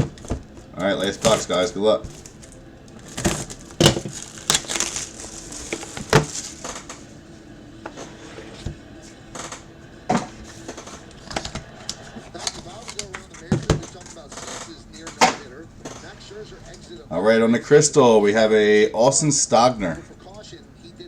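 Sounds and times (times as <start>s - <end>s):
wrapper and cardboard crinkling: 0.0s - 7.1s.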